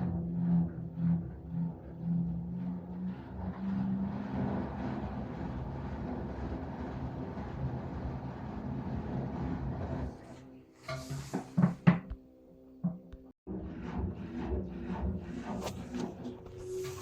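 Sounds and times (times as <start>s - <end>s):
washing machine spinning: 0.0s - 10.4s.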